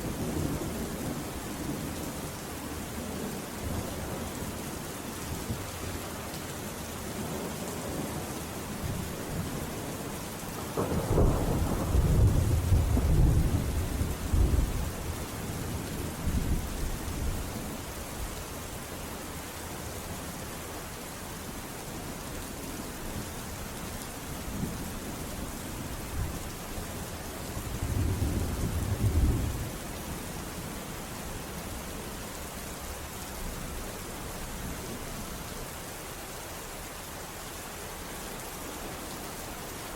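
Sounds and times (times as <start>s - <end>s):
steady rain falling: 0.0s - 39.9s
thunder rumbling: 10.6s - 15.2s.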